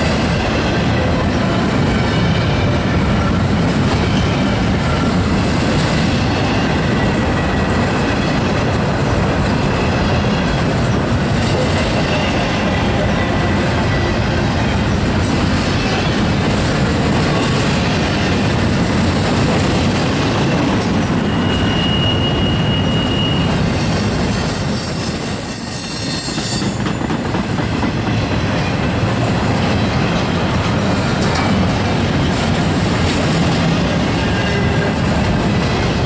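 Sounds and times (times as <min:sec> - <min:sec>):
train wheels rumbling on rail: 0:00.0 - 0:36.0
wheel squeal: 0:21.1 - 0:26.8.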